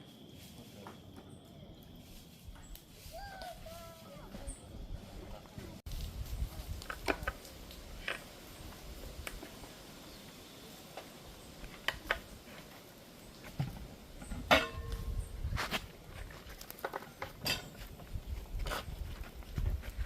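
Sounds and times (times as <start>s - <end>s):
metal clank ringing: 14.4s - 15.1s.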